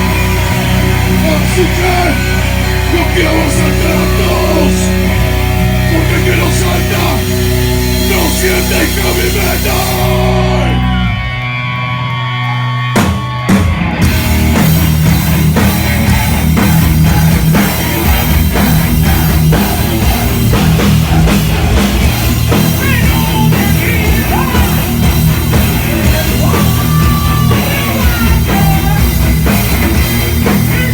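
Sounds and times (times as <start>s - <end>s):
rock band playing: 0.0s - 30.9s.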